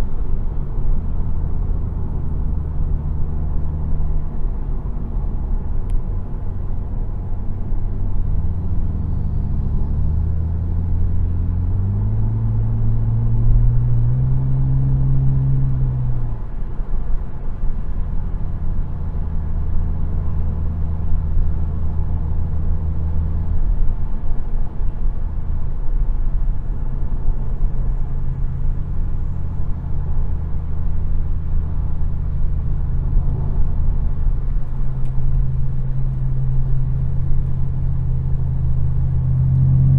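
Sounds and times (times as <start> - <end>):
car engine revving: 6.4 - 16.6, 26.4 - 39.9.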